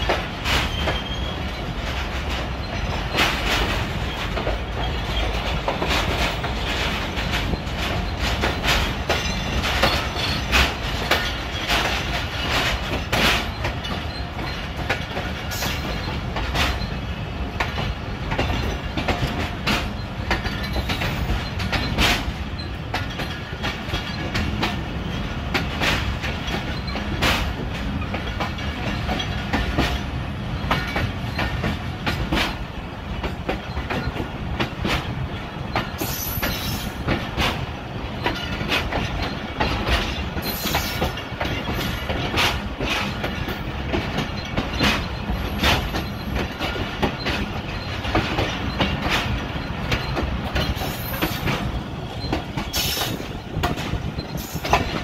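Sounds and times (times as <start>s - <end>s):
train rumble: 0.0s - 55.0s
wheels clacking over rail joints: 0.0s - 55.0s
high-pitched wheel squeals: 0.6s - 1.8s.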